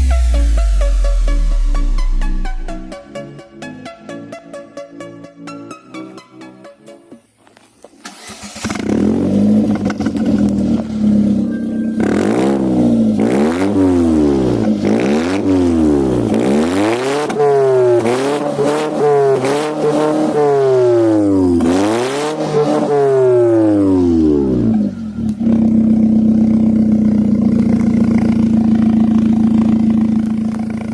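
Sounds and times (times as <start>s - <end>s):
car engine idling and revving: 0.0s - 3.0s, 8.0s - 30.9s.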